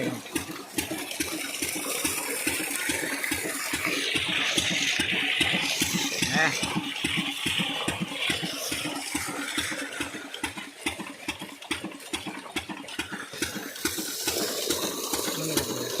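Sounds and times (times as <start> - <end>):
diesel engine knocking: 0.0 - 16.0.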